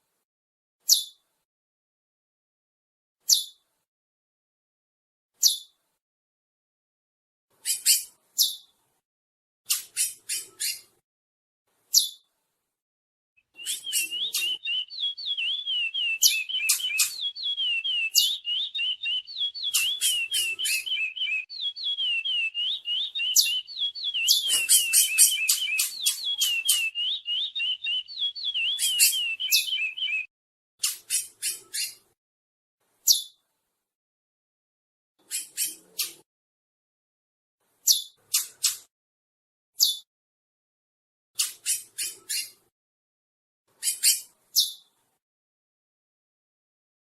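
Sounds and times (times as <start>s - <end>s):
finch song: 0.8s - 1.3s, 3.2s - 3.8s, 5.4s - 5.9s, 7.5s - 9.0s, 9.7s - 11.0s, 11.7s - 12.5s, 13.4s - 32.2s, 32.9s - 33.5s, 35.2s - 36.3s, 37.6s - 38.9s, 39.8s - 40.1s, 41.4s - 42.7s, 43.7s - 45.2s
sharp bird notes: 13.6s - 30.3s.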